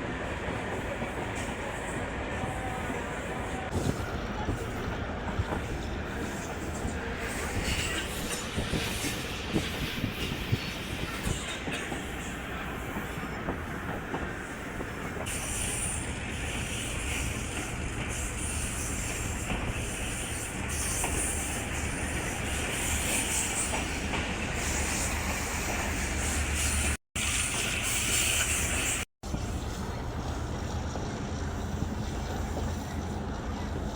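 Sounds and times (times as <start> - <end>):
wheels running on rail: 0.0 - 33.9
hiss: 14.4 - 29.0.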